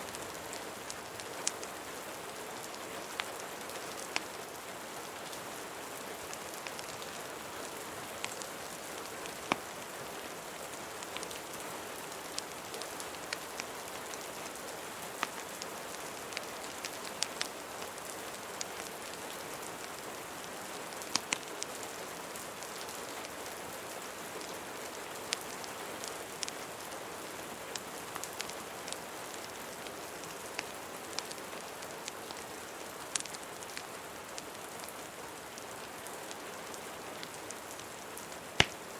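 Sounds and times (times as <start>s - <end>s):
steady rain: 0.0s - 38.9s
sharp clicks and pops: 38.6s - 38.8s.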